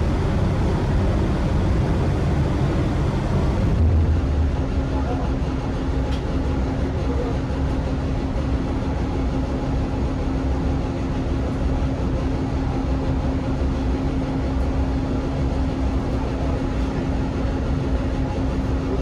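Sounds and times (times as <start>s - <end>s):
passenger train running: 0.0s - 19.0s.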